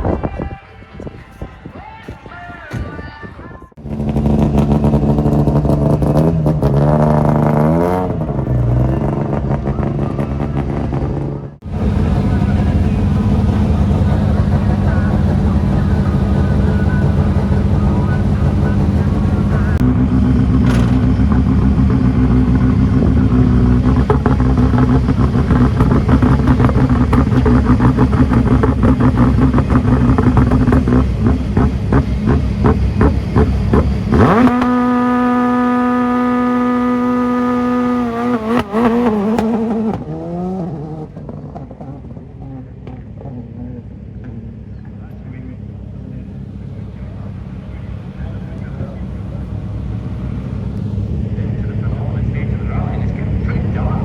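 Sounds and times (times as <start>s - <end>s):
music: 0.2s - 3.7s
exhaust crackles and pops: 3.8s - 36.1s, 41.0s - 43.3s, 44.1s - 51.2s
rally car engine at high revs: 3.8s - 54.0s.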